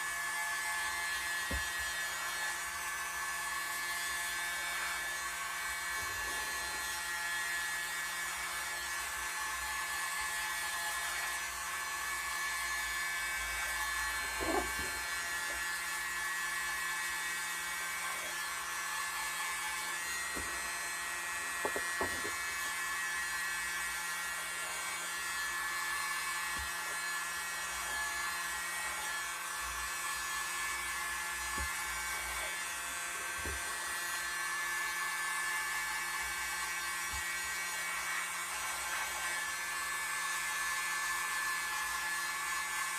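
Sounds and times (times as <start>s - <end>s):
electric blower whining: 0.0s - 3.9s, 11.2s - 40.2s.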